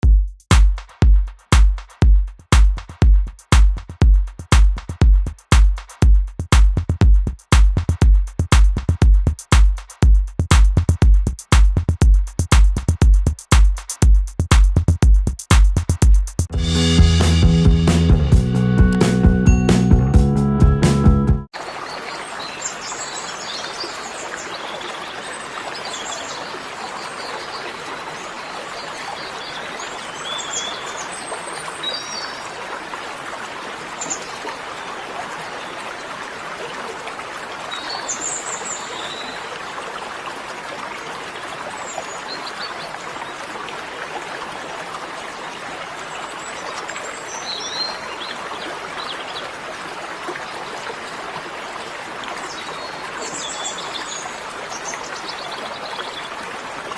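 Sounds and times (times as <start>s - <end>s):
stream water running: 21.5s - 56.9s.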